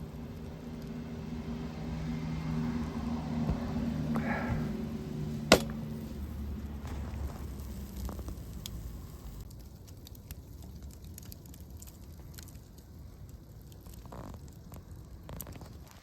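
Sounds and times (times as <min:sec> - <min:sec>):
campfire crackling and popping: 0:05.5 - 0:16.0.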